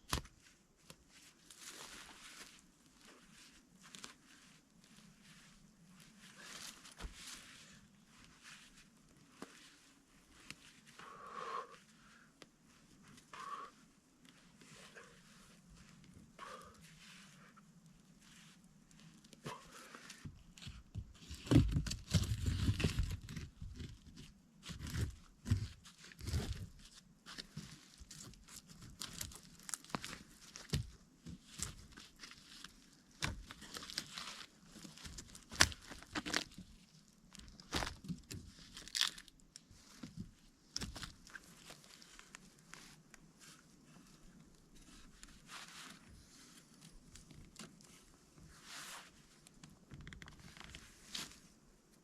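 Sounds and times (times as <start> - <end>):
branches snapping and crunching: 27.4 - 42.4.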